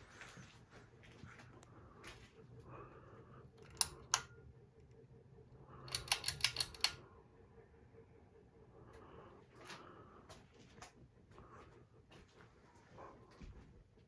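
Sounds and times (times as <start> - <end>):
ceiling fan humming: 0.0 - 13.0
sharp clicks: 3.6 - 4.3, 5.9 - 7.0.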